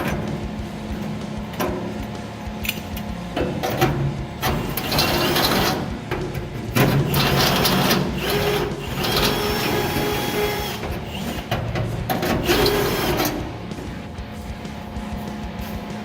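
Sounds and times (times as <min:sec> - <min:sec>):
electric drill whining: 0:04.4 - 0:14.0.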